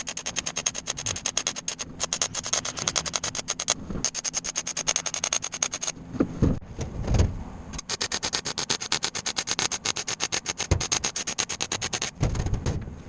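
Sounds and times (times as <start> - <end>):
power tool chattering: 0.0 - 6.0, 7.8 - 12.2.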